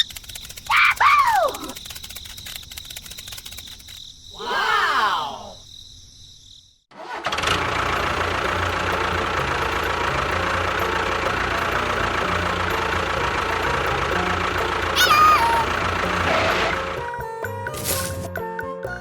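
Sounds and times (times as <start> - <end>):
engine idling with knocking beat: 7.3 - 17.3.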